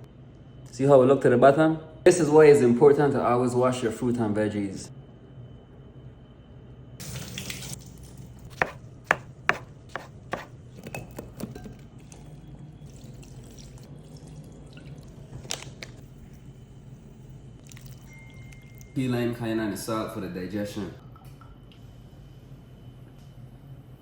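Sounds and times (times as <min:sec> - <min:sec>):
knife striking cutting board: 0:08.5 - 0:10.6.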